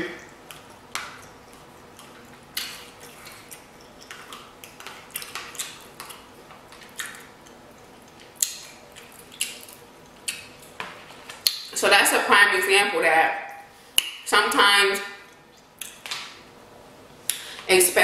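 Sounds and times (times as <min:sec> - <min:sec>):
person chewing: 0:00.2 - 0:11.8, 0:15.3 - 0:16.0.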